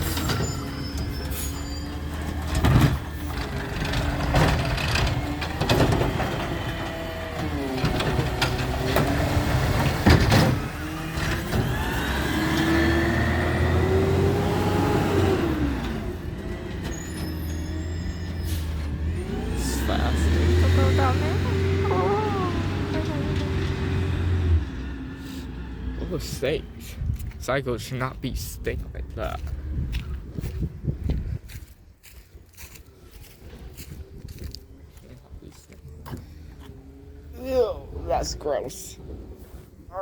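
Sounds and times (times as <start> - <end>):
truck knocks and clanks: 0.0 - 14.2
truck engine humming: 0.0 - 29.8.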